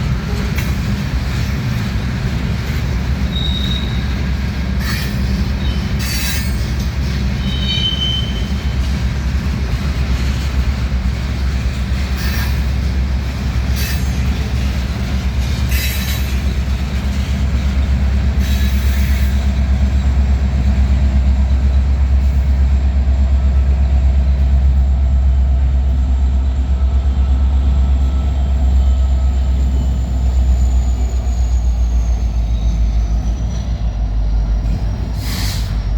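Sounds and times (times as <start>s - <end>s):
train wheels rumbling on rail: 0.0s - 35.9s
high wheel squeals: 3.2s - 8.8s.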